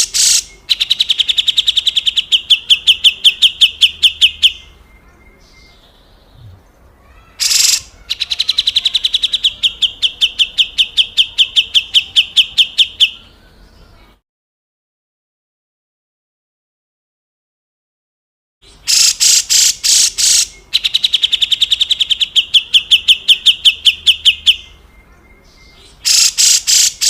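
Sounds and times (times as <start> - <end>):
bird rapid repeated call: 0.0 - 4.8, 6.4 - 13.4, 18.6 - 24.8, 25.7 - 27.0
harsh rasping bird call: 0.0 - 4.8, 6.3 - 13.4, 18.6 - 24.8, 25.8 - 27.0.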